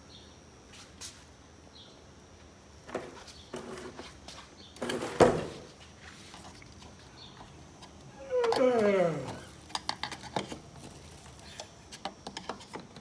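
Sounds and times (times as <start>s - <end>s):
scraping and creaking handling: 7.8s - 13.0s.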